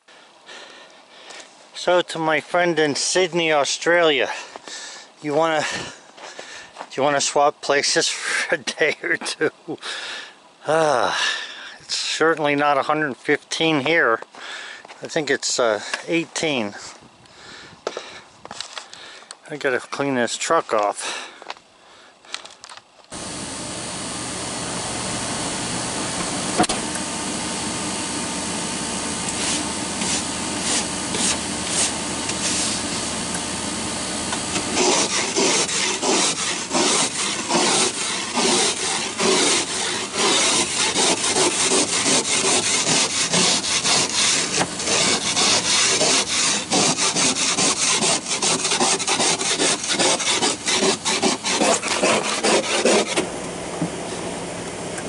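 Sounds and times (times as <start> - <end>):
steady hum: 20.2 - 55.0
scraping ice off windows: 29.3 - 33.0, 34.4 - 53.2.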